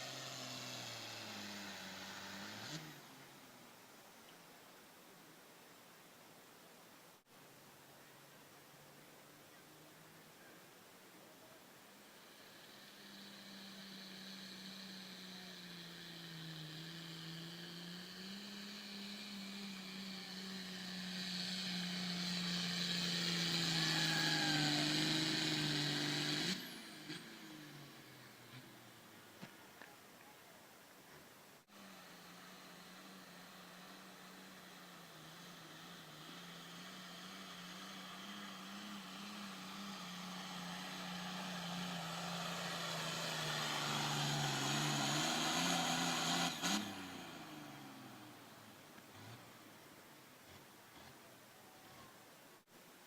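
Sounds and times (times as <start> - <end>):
tractor engine under load: 31.7 - 52.2.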